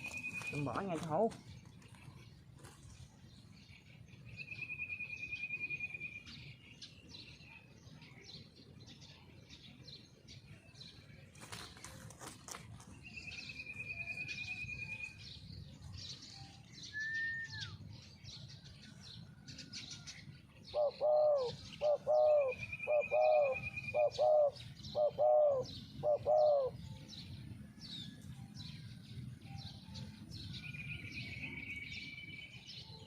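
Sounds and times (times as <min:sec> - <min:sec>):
small birds trilling and chirping: 0:00.0 - 0:33.0
dove cooing: 0:20.7 - 0:26.9.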